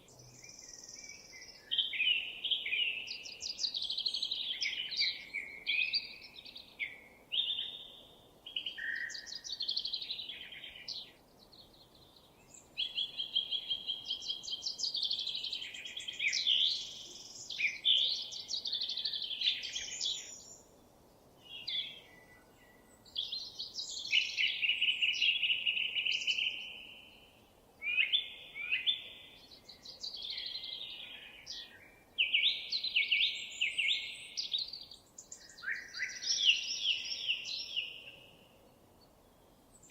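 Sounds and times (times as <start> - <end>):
faint background noise: 0.0 - 39.9
songbird trilling and warbling: 23.0 - 27.2, 27.8 - 38.3.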